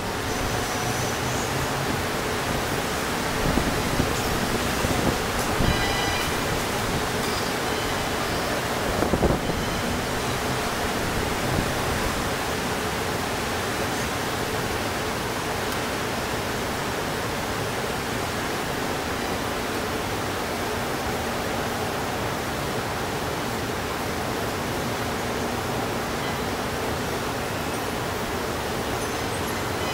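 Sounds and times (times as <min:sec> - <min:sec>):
distant traffic: 0:00.0 - 0:29.9.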